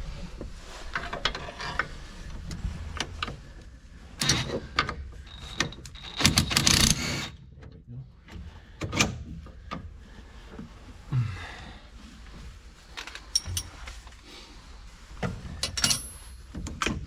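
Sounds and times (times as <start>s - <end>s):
metal parts clinking: 13.0s - 13.9s, 15.6s - 16.5s.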